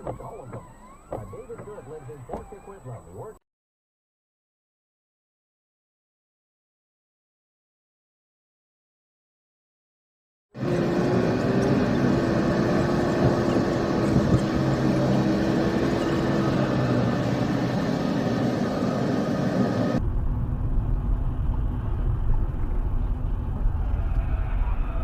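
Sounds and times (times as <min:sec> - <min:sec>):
dull vehicle rumble: 0:00.0 - 0:03.4, 0:10.6 - 0:25.0
vehicle engine and road noise: 0:00.0 - 0:03.4, 0:10.6 - 0:25.0.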